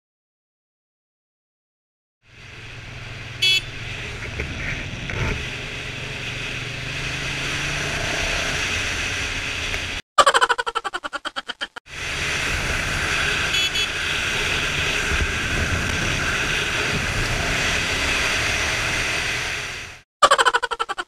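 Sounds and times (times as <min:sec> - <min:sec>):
wind rushing over microphone: 0:12.1 - 0:19.8.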